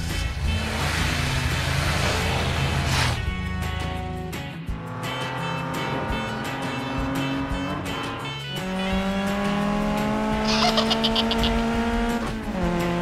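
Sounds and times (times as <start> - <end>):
background music with steady beat: 3.2 - 13.0
cartoon race car engine revving: 4.9 - 13.0.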